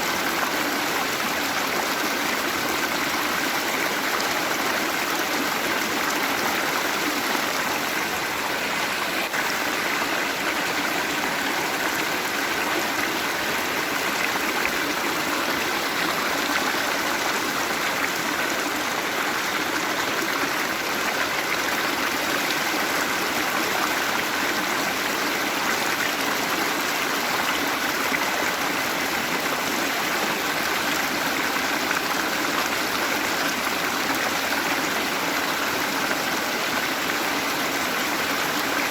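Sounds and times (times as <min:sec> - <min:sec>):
waterfall rushing: 0:00.0 - 0:25.6.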